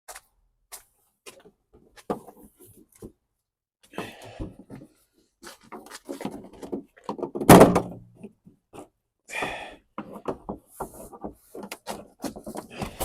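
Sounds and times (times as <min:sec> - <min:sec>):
loud thunk: 0:07.4 - 0:08.0.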